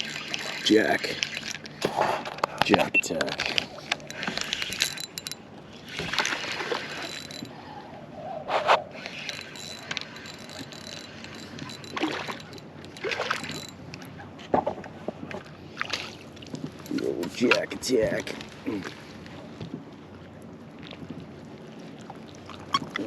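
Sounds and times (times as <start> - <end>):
water splashing beside boat: 13.0 - 23.0.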